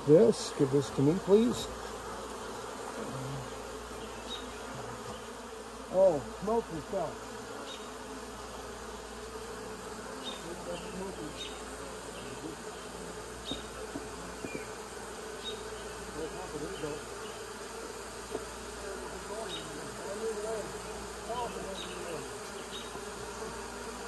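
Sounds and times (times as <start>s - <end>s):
single bees flying past: 0.0s - 24.0s
swarm of bees buzzing: 0.0s - 24.0s.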